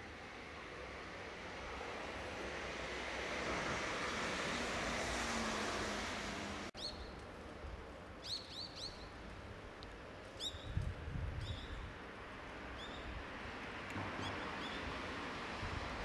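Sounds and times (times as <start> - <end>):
street noise: 0.0 - 16.0
small birds chirping: 6.8 - 7.2, 8.2 - 9.2.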